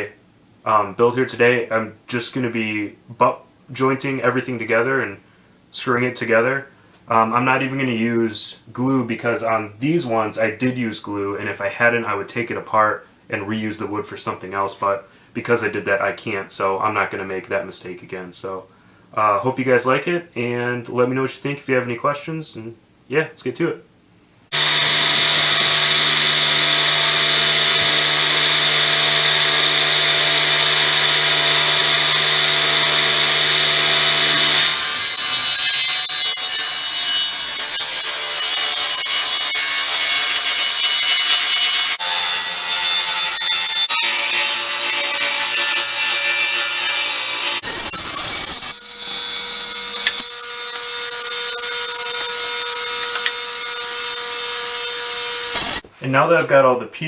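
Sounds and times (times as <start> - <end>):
table saw cutting wood: 24.5 - 55.8.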